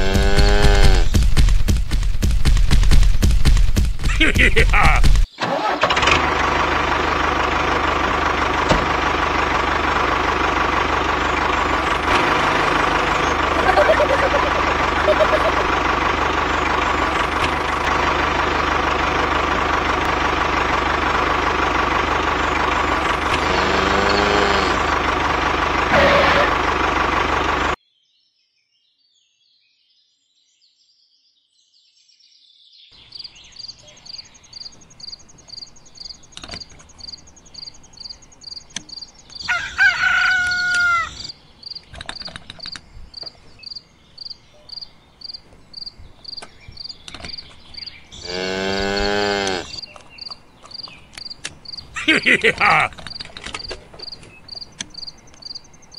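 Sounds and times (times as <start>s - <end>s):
loud engine running: 0.0s - 27.8s, 46.4s - 55.0s
insect chirping: 33.0s - 39.6s, 40.5s - 52.5s, 54.0s - 55.9s
rooster crowing: 39.4s - 41.3s.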